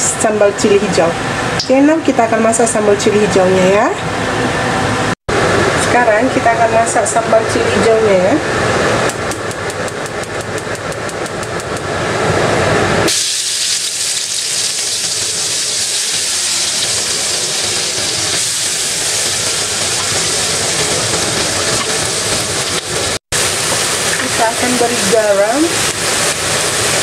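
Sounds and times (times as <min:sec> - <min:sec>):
paste sizzling in hot oil: 0:13.1 - 0:21.9.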